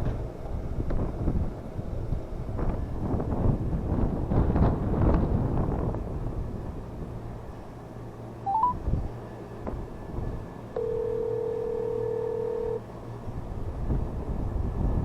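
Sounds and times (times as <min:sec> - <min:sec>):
low steady hum: 0:06.1 - 0:15.0
electronic beeps: 0:08.5 - 0:08.8.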